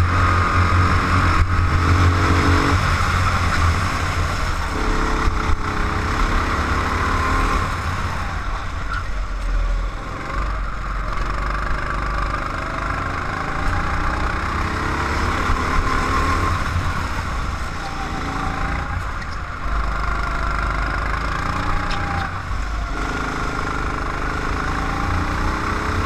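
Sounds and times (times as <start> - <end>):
racing engine revving: 0.0 - 8.8, 10.0 - 17.3.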